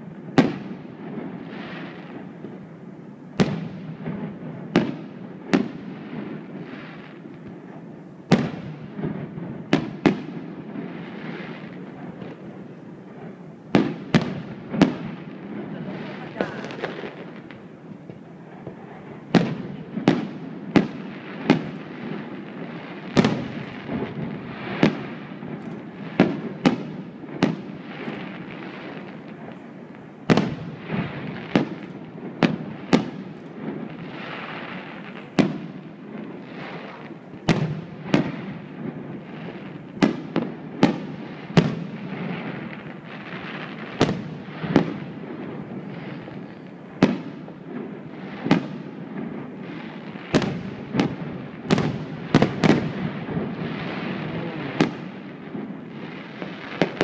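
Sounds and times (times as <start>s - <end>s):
fireworks bangs: 0.0s - 57.0s
fireworks rumble and crackle: 0.0s - 57.0s.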